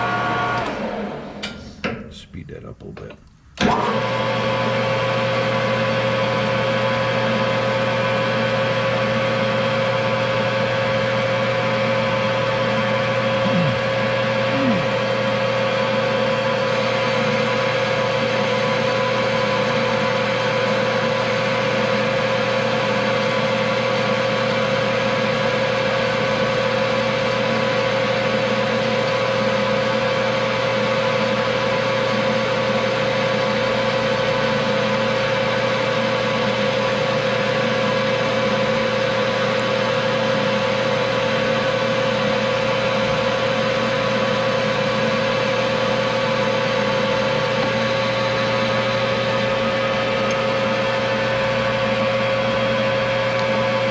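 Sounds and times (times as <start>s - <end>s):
metal lathe whining: 43.2s - 53.8s.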